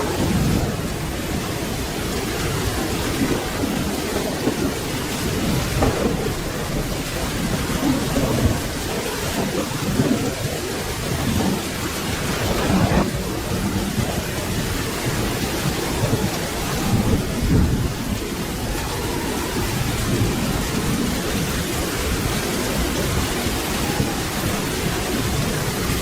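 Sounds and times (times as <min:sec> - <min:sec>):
rolling thunder: 0:00.0 - 0:26.0
steady rain: 0:00.0 - 0:26.0.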